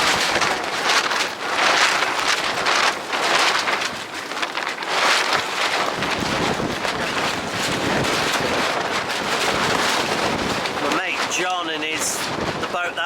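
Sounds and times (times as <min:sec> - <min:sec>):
strong gusty wind: 0:00.0 - 0:13.0
wind buffeting microphone: 0:00.0 - 0:13.0.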